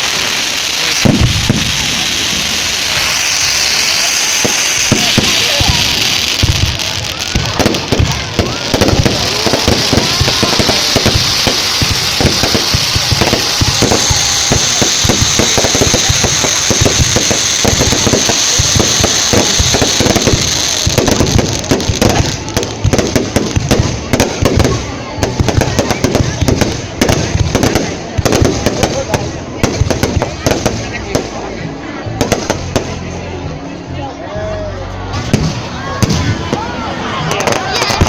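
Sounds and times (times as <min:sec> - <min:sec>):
fireworks bangs and crackles: 0:00.0 - 0:33.6, 0:35.1 - 0:38.0
steady fireworks hiss: 0:00.0 - 0:33.6, 0:35.0 - 0:38.0.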